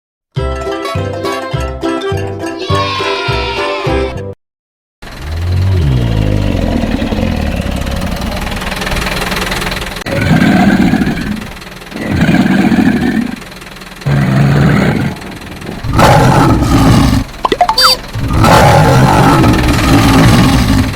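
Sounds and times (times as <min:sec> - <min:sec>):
deep animal roars: 0:05.1 - 0:09.0, 0:10.0 - 0:13.4, 0:14.0 - 0:17.4, 0:18.2 - 0:20.9.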